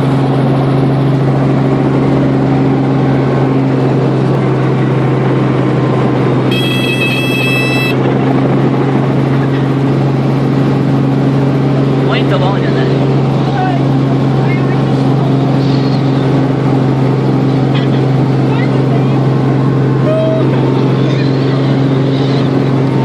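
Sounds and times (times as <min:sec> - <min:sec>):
helicopter running: 0:00.0 - 0:23.0
high electronic beep: 0:06.5 - 0:08.0.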